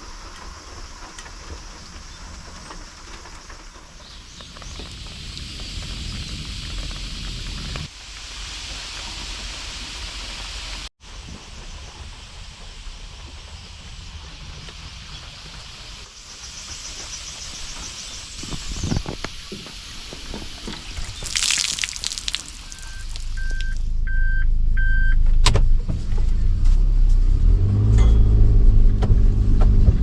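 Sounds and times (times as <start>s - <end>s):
vehicle engine rumble: 0.0s - 30.0s
short electronic beeps: 22.6s - 25.2s.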